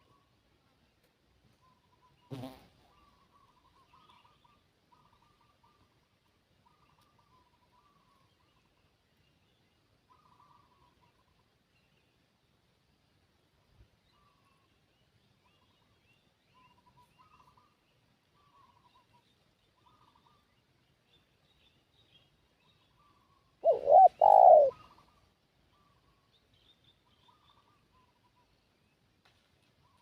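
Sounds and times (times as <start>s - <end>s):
small birds chirping: 14.0s - 29.0s
dove cooing: 23.6s - 25.0s.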